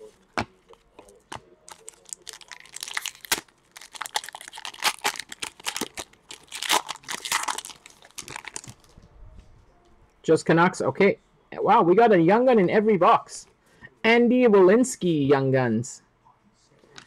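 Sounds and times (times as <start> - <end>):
foil wrapper crinkling and tearing: 1.7 - 8.9.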